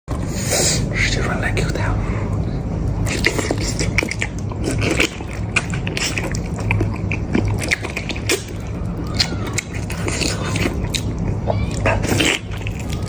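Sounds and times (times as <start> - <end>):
steady low hum: 0.1 - 13.0
chewing and biting: 3.0 - 13.0
sharp wet clicks: 3.1 - 13.0.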